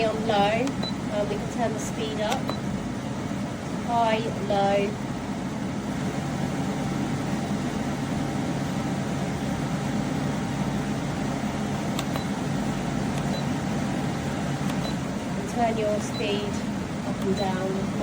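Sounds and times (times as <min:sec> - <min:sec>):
air conditioner fan humming: 0:00.0 - 0:18.0
control panel click: 0:02.2 - 0:02.6, 0:11.9 - 0:12.3.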